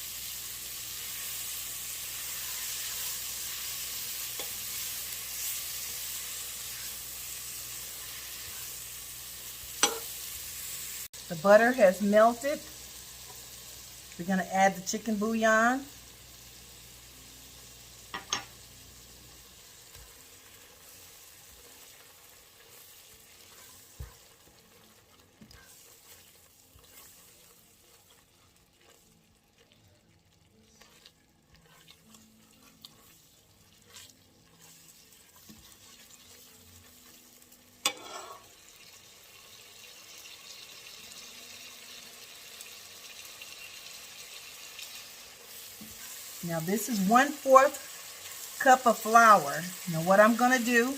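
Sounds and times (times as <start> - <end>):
vegetables sizzling in a pot: 0.0 - 50.9
spoon stirring in a pot: 2.1 - 8.9, 9.6 - 10.4, 19.8 - 29.9, 30.5 - 37.2, 37.8 - 38.6, 44.3 - 47.0.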